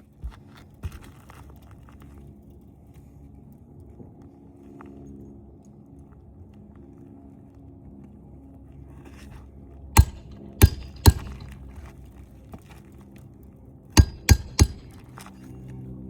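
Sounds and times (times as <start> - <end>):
hammer striking roofing nails: 10.0 - 11.7, 14.0 - 15.3.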